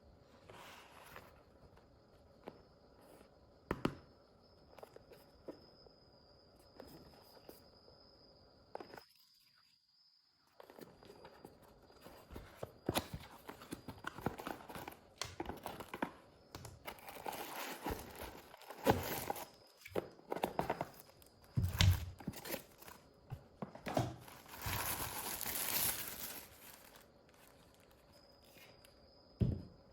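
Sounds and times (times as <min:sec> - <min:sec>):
packaging crinkling and rustling: 0:10.7 - 0:28.6.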